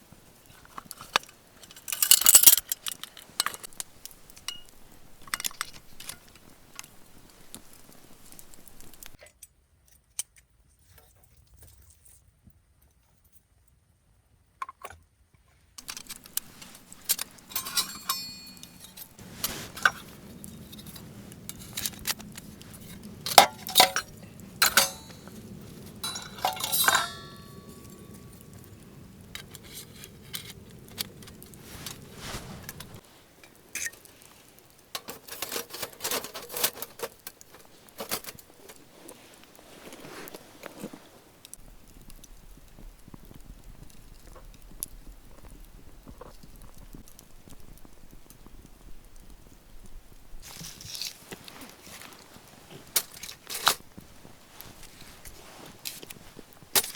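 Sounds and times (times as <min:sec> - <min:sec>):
metal gear clinking: 0:01.6 - 0:03.7, 0:15.8 - 0:33.0
low steady noise: 0:15.8 - 0:56.9.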